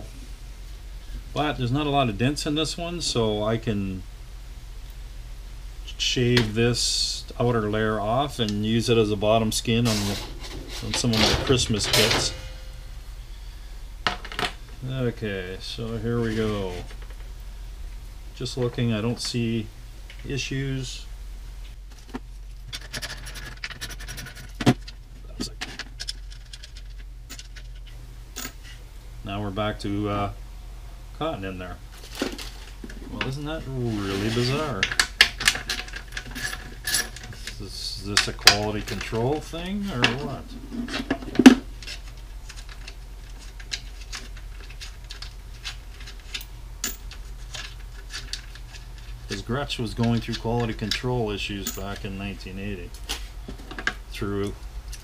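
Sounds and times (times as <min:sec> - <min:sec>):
steady low hum: 0:00.0 - 0:55.0
drum hardware clicking and rattling: 0:09.7 - 0:12.9, 0:34.5 - 0:52.2.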